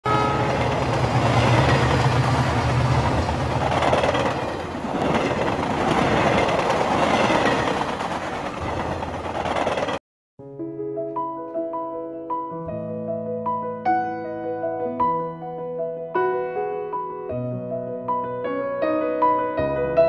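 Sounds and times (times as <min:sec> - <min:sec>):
train passing on rails: 0:00.1 - 0:10.0.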